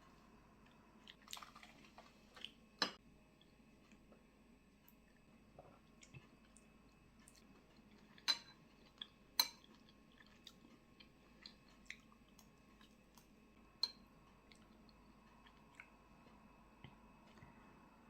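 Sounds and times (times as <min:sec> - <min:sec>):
quiet chewing: 0:00.6 - 0:02.6, 0:03.4 - 0:17.7
utensils clinking against a bowl: 0:08.2 - 0:08.6.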